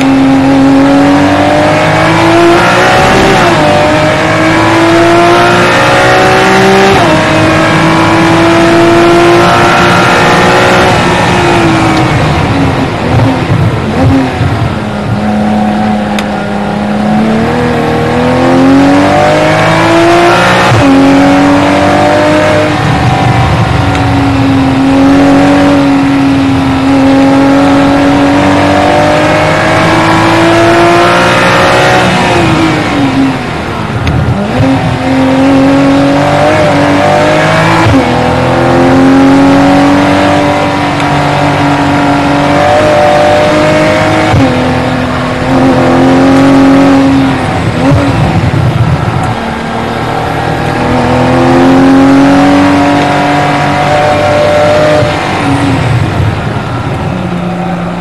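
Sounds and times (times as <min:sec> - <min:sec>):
race car engine at speed: 0:00.0 - 0:58.0.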